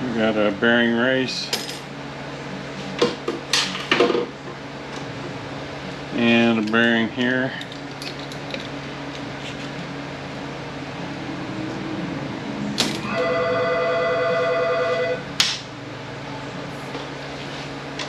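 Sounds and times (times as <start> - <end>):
steady low hum: 0.0 - 18.0
telephone ringing: 13.0 - 15.3.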